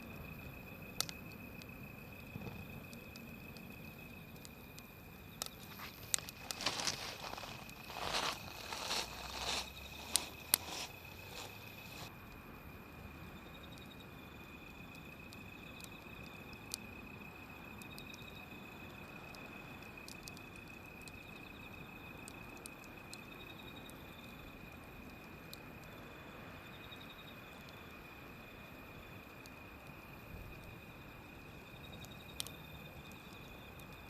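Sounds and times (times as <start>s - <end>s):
insect-like chirping: 0.1s - 12.1s, 12.8s - 34.0s
wood fire crackling: 0.9s - 12.1s, 14.6s - 26.0s.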